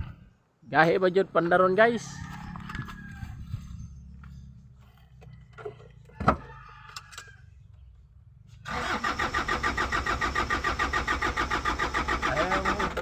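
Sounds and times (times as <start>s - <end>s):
truck engine cranking: 8.6s - 13.0s.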